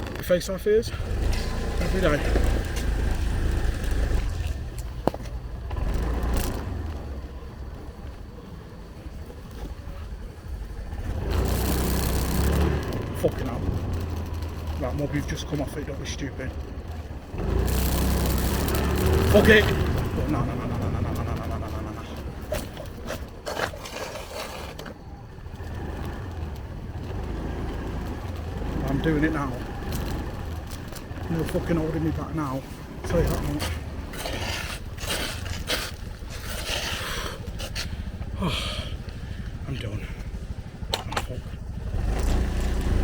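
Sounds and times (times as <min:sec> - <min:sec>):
motorbike engine rumbling: 0:00.0 - 0:43.0
sharp scrapes and knocks: 0:22.4 - 0:25.0, 0:33.3 - 0:38.0.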